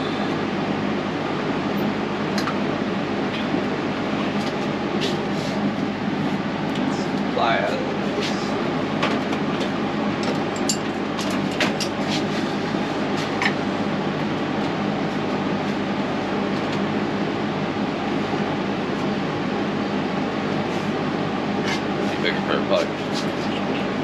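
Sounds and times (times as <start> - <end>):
machinery whirring hum: 0.0 - 24.0.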